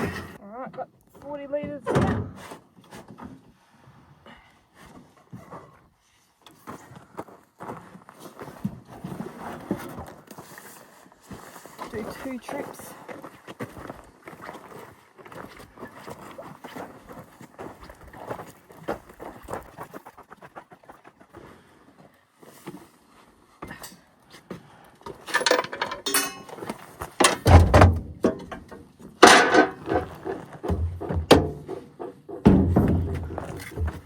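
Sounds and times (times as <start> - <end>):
oil containers thudding: 25.2 - 26.6, 27.2 - 31.8.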